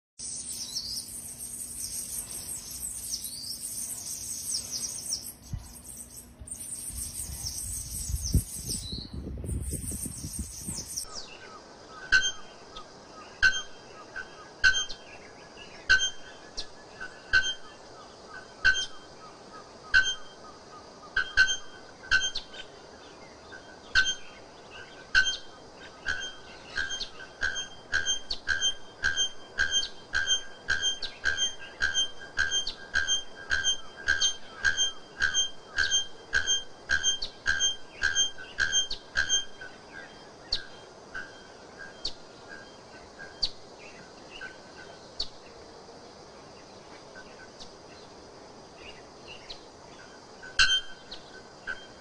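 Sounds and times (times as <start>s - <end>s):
small birds twittering: 0.2s - 52.0s
bellbird metallic calls: 26.1s - 39.6s, 50.4s - 51.0s.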